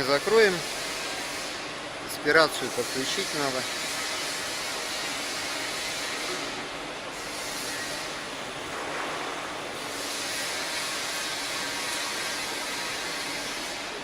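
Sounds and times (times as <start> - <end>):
circular saw machine hissing: 0.0 - 1.6, 2.2 - 8.2.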